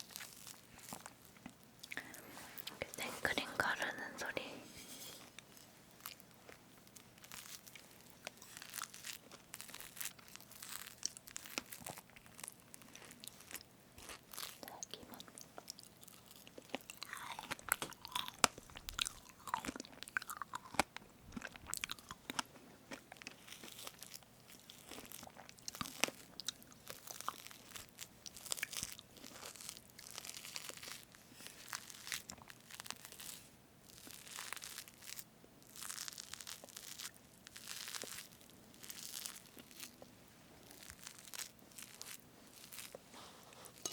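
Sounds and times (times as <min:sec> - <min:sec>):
chewing and mouth sounds: 0:05.4 - 0:31.0.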